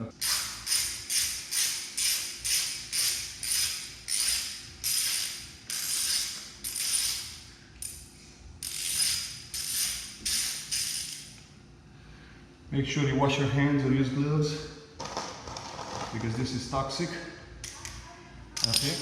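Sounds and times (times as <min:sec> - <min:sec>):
ratchet wrench clicking: 0:00.2 - 0:08.0, 0:08.6 - 0:11.4, 0:18.6 - 0:19.0.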